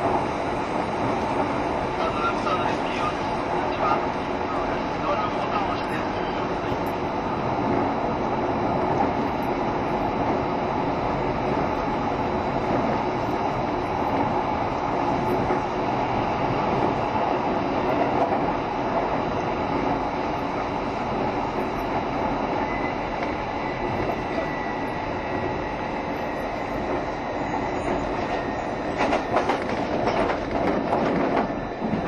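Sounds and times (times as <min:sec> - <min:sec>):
train wheels rumbling on rail: 0:00.0 - 0:32.0
train car body noise: 0:28.9 - 0:32.0.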